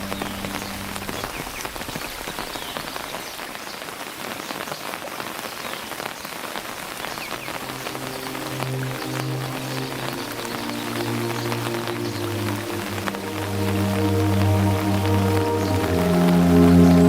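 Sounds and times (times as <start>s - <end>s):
low music notes: 0.0s - 1.6s, 7.6s - 17.0s
steady rain on surfaces: 0.0s - 17.0s.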